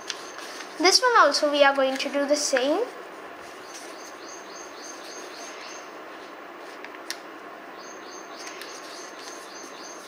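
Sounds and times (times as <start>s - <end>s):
small bird chirping: 3.6s - 6.0s, 7.8s - 10.0s.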